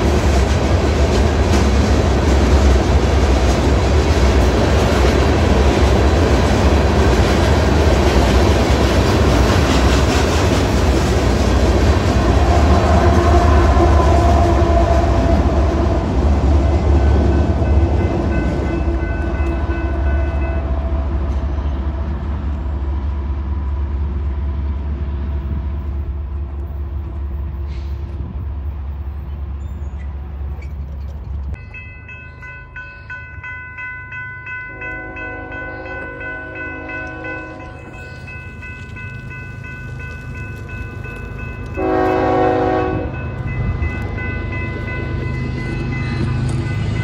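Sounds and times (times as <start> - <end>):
freight train rumbling past: 0.0 - 47.0
train horn: 12.0 - 22.8, 34.7 - 38.0, 41.6 - 43.6
crossing bell ringing: 13.3 - 22.8, 31.6 - 47.0.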